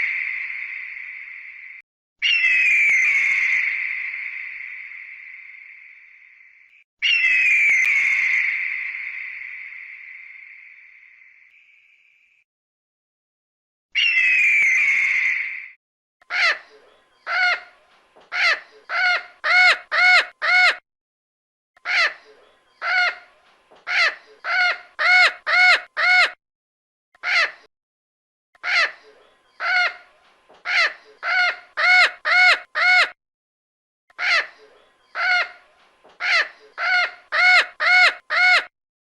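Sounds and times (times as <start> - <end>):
bird calling harshly: 23.9 - 26.4, 30.7 - 33.2, 34.2 - 38.7.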